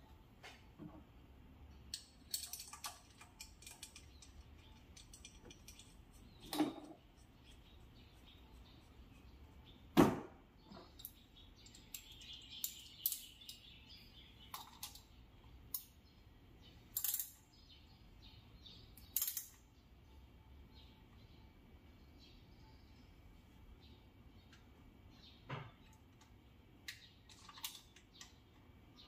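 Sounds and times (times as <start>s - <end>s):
metal tools clinking: 1.9s - 7.0s.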